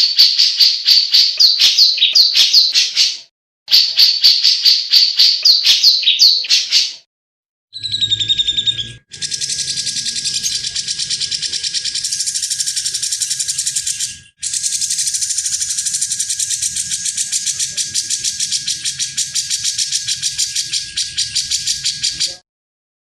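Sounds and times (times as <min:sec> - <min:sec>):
bird rattling chatter: 0:09.1 - 0:22.3.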